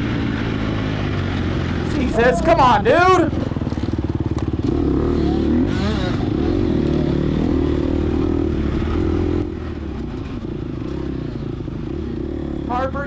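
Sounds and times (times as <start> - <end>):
dirt bike engine revving: 1.2 - 6.7.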